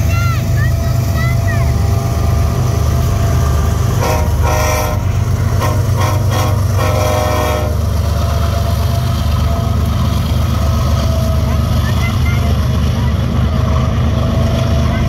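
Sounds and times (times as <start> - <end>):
diesel locomotives rumbling past: 0.0 - 15.0
locomotive air horn blasts: 4.0 - 8.0.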